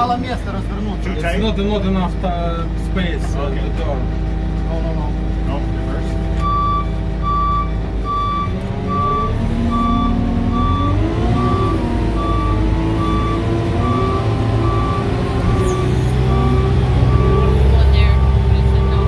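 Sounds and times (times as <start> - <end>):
truck engine running: 0.0 - 19.0
reversing alarm beeping: 6.4 - 19.0.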